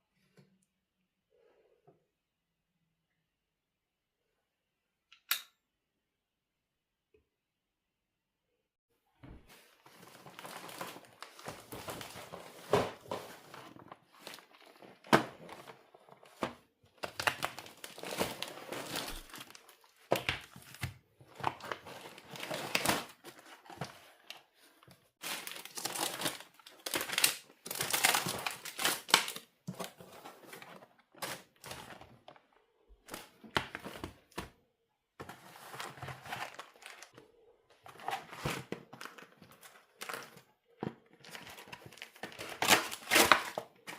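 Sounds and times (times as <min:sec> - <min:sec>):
packaging crinkling: 0:25.2 - 0:29.5.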